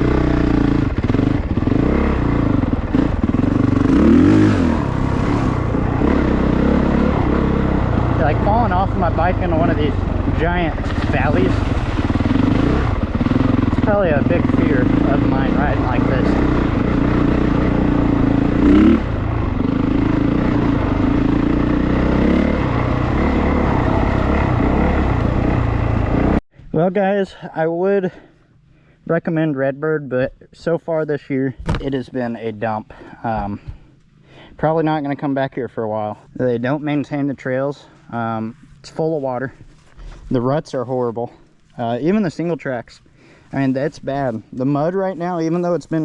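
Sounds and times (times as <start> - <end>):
motorcycle engine revving: 0.0 - 26.4.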